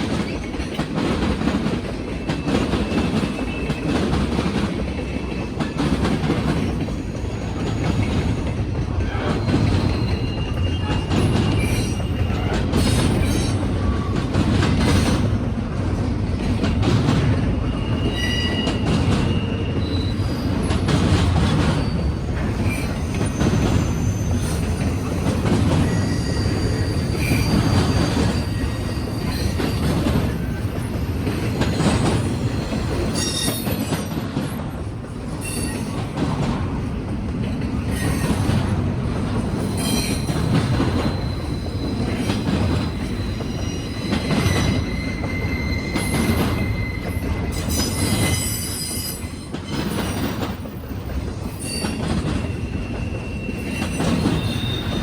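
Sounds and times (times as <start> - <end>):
freight train cars rolling past: 0.0 - 55.0
high wheel squeals: 9.1 - 14.1, 17.6 - 20.9, 21.5 - 34.1, 39.6 - 55.0.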